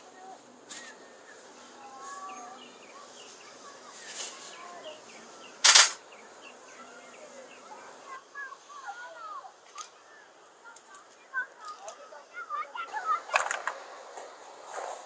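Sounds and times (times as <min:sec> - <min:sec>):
small birds chirping: 0:00.0 - 0:15.0
sharp loud burst of noise: 0:05.6 - 0:06.0.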